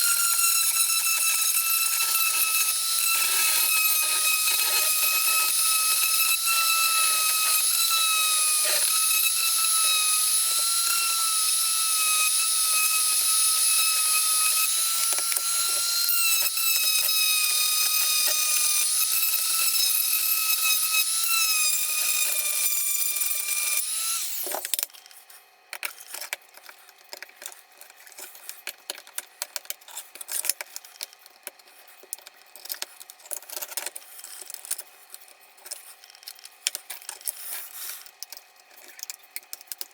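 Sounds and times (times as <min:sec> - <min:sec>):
power tool whining: 0:00.0 - 0:24.8.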